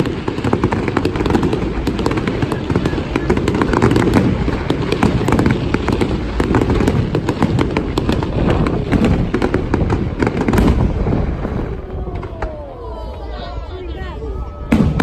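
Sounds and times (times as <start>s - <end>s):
deep rumble of bursting shells: 0.0s - 12.6s
fireworks crackling: 0.0s - 15.0s.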